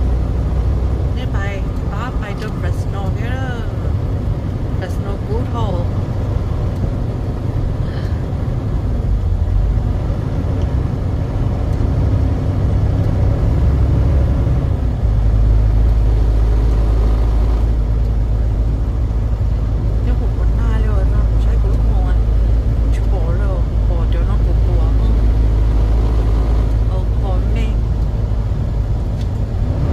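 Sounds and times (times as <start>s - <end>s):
truck engine low rumble: 0.0s - 29.9s.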